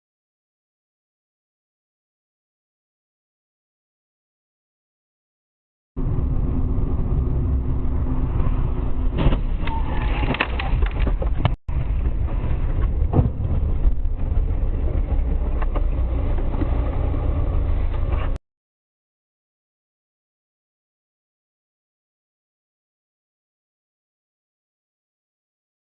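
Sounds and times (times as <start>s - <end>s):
road and engine rumble: 6.0s - 18.4s.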